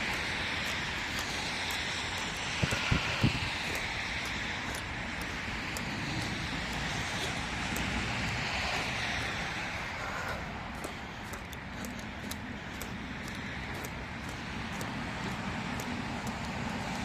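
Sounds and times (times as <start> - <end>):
car passing: 0.0 - 17.0
road traffic noise: 0.0 - 17.0.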